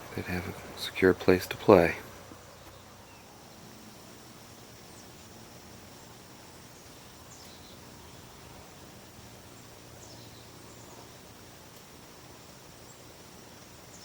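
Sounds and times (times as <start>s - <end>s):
faint hiss of insects: 0.0s - 14.0s
faint bird chirps: 2.3s - 11.8s, 12.8s - 14.0s.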